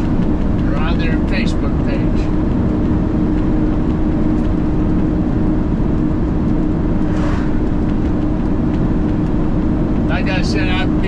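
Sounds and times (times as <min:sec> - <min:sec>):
truck engine and road drone: 0:00.0 - 0:11.0.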